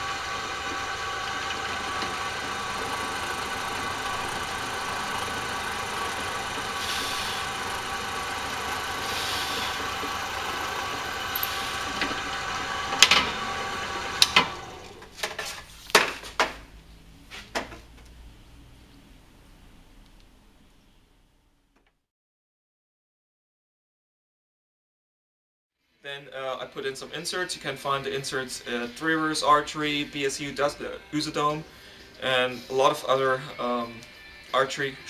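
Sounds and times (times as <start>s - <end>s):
electric drill boring into wood: 0.0s - 15.1s
sharp clicks and knocks: 10.0s - 16.7s.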